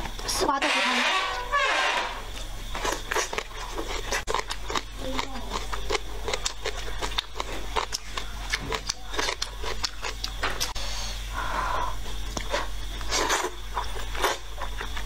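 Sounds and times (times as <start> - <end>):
chewing with wet clicks: 2.4 - 10.8, 12.2 - 15.0.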